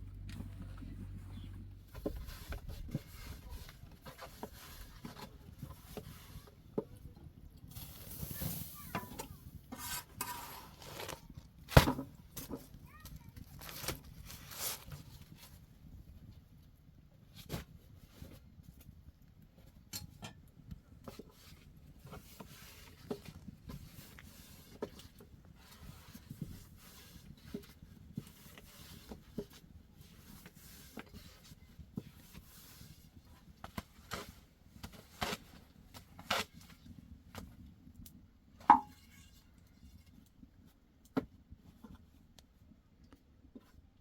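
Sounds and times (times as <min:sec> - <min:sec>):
soft low rumble: 0:00.0 - 0:05.9.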